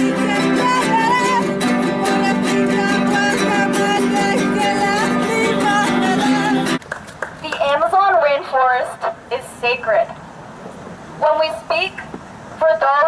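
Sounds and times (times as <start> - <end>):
acoustic guitar music: 0.0 - 6.8.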